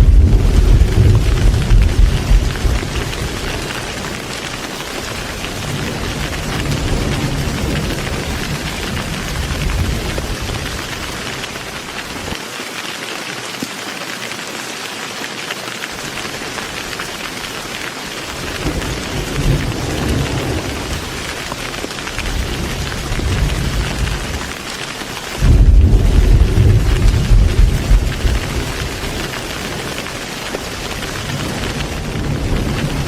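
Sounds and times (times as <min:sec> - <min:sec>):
low rolling thunder: 0:00.0 - 0:04.3, 0:05.2 - 0:11.0, 0:18.5 - 0:24.5, 0:25.4 - 0:30.1, 0:30.8 - 0:33.0
heavy rain falling: 0:00.0 - 0:33.0.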